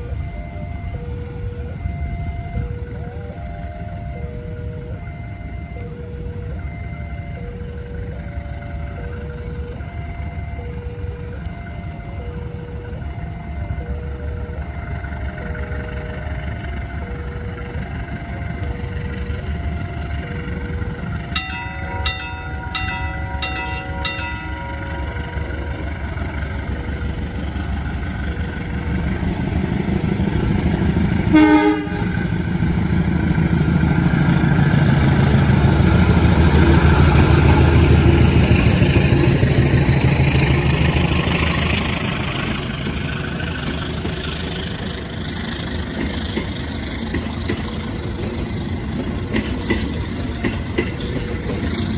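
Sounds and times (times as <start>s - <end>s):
two-note signal: 0.0s - 39.4s
low engine drone: 0.0s - 49.3s
train rumble: 0.0s - 51.9s
train horn blast: 28.8s - 42.7s.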